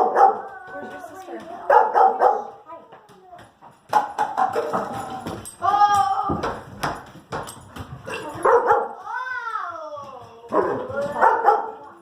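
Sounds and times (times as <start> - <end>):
dog barking: 0.0 - 0.5, 1.7 - 2.6, 8.1 - 9.0, 10.5 - 11.9.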